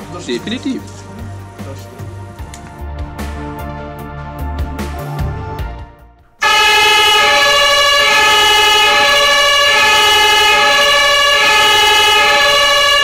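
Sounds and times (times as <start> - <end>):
music: 0.0 - 6.4
fire engine horn blaring: 6.4 - 13.0.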